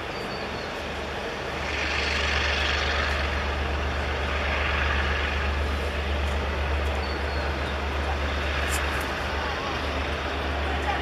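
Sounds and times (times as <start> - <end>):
low drone: 0.0 - 11.0
train wheels rumbling on rail: 0.0 - 11.0.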